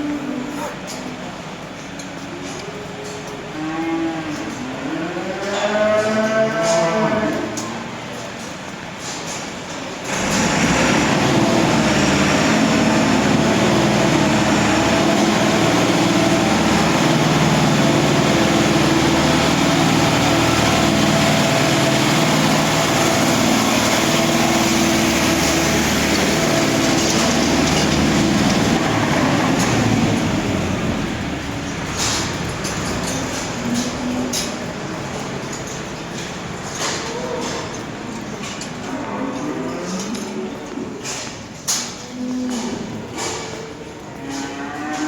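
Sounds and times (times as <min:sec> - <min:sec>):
heavy engine running: 0:00.0 - 0:39.5.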